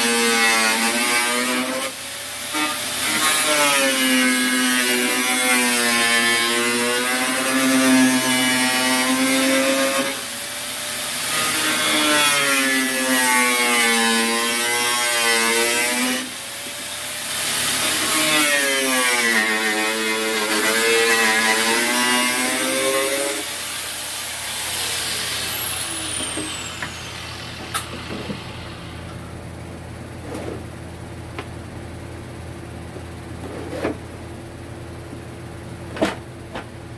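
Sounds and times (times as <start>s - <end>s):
small motor running: 21.8s - 29.3s.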